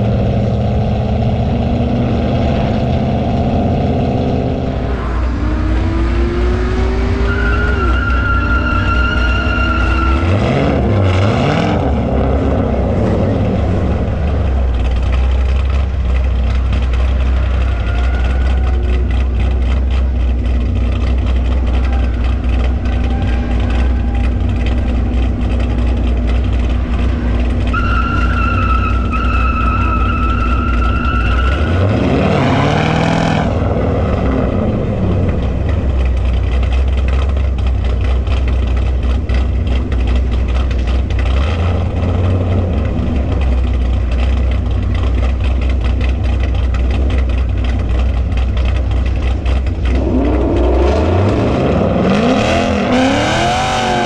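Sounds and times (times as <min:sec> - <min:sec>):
car engine droning and revving: 0:00.0 - 0:54.0
high squealing tone: 0:04.4 - 0:12.4, 0:17.1 - 0:19.5, 0:21.6 - 0:34.4.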